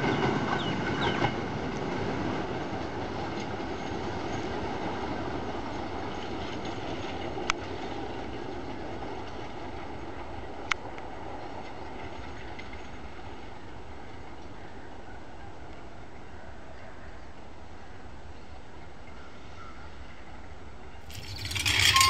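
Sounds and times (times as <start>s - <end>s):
train rumbling away: 0.0s - 13.5s, 21.1s - 22.0s.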